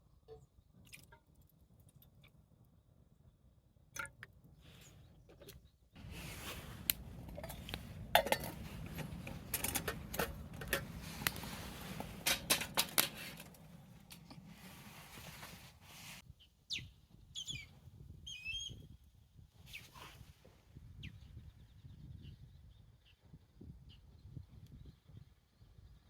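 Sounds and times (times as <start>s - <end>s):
clicks and light knocks: 6.8s - 14.5s.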